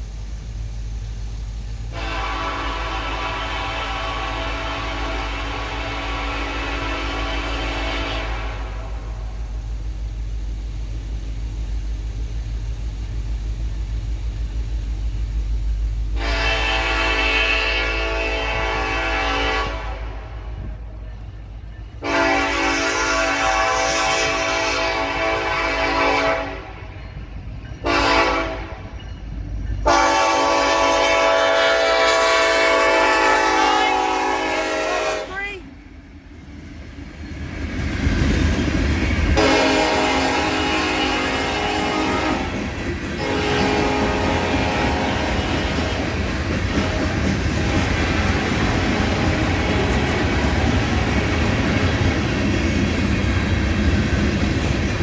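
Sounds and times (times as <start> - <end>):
diesel locomotive engines rumbling: 0.0 - 55.0
train horn blasts: 1.9 - 9.4, 16.2 - 20.8, 22.0 - 27.0, 27.8 - 29.0, 29.8 - 35.6, 39.4 - 46.1, 46.7 - 51.4.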